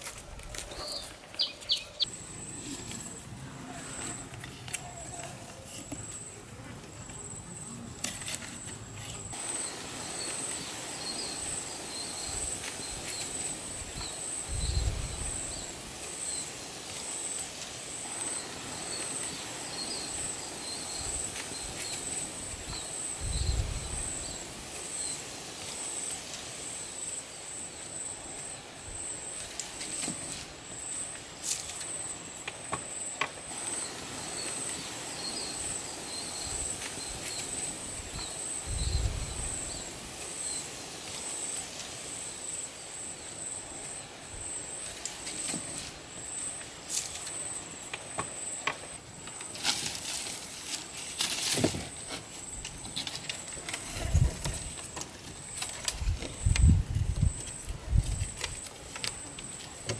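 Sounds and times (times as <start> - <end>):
insects pulsing chirp: 0.0 - 59.9
faint chirps: 0.6 - 6.4.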